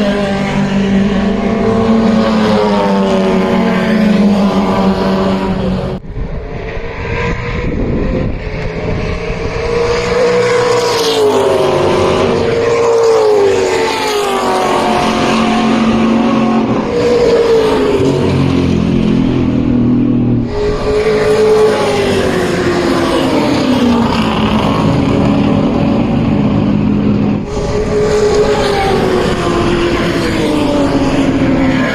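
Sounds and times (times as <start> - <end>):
race car engine revving: 0.0 - 31.9.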